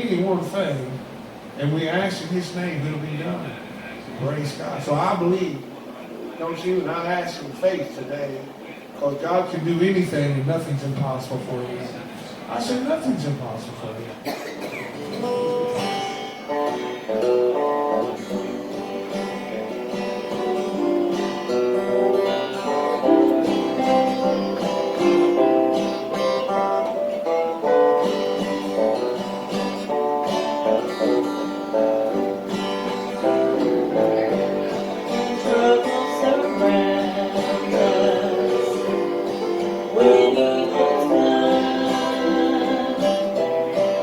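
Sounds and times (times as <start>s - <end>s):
acoustic guitar chords: 12.4s - 44.0s.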